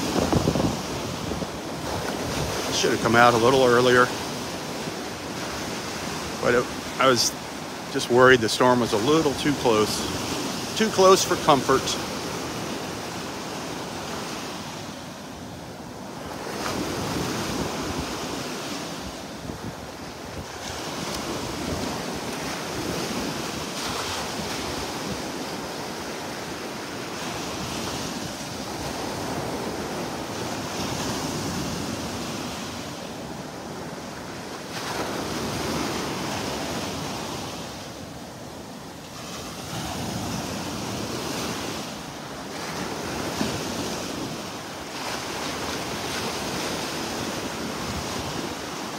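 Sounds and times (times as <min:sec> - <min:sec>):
wind on microphone: 0:00.0 - 0:03.0, 0:16.6 - 0:25.7
surf washing in: 0:00.0 - 0:48.9.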